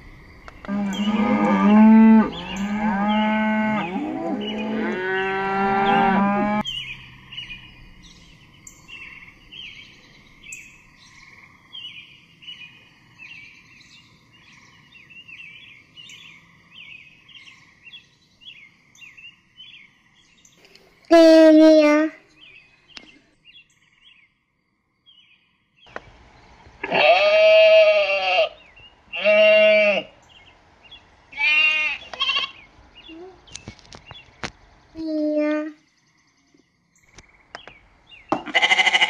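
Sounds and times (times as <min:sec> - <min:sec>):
small birds chirping: 0:00.0 - 0:26.8, 0:27.7 - 0:39.0
cow mooing: 0:00.7 - 0:06.6.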